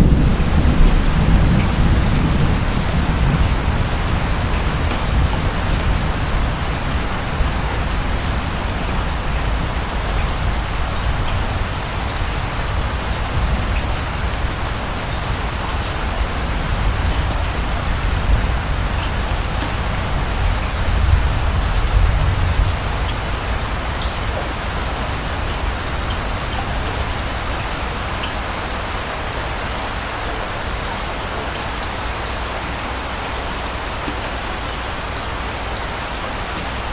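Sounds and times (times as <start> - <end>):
steady rain on surfaces: 0.0 - 36.9.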